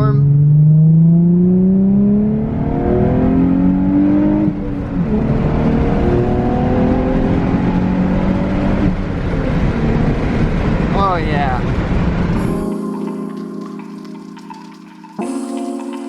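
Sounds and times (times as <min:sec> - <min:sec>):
car engine accelerating: 0:00.0 - 0:10.9.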